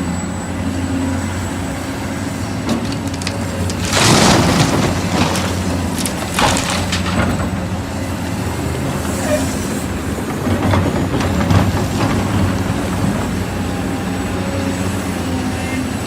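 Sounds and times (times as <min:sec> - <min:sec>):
excavator diesel engine running: 0:00.0 - 0:16.0
machine clanks and knocks: 0:02.6 - 0:07.8.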